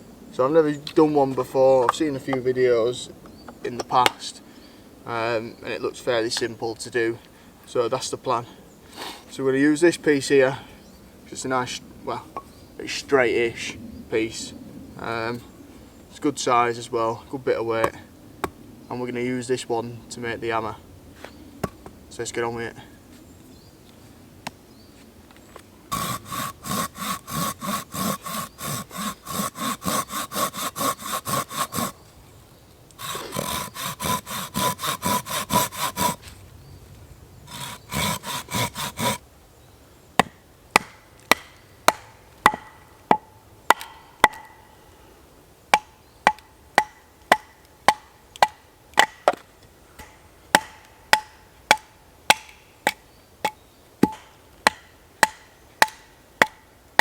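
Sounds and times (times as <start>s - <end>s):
hand saw cutting log: 25.9s - 32.0s, 33.0s - 36.3s, 37.5s - 39.2s.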